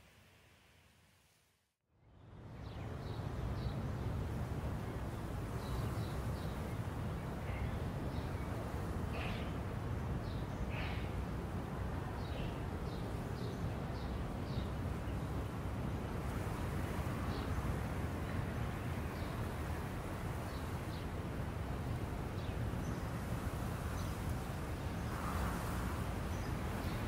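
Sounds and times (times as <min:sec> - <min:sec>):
small birds chirping: 0:05.6 - 0:11.2.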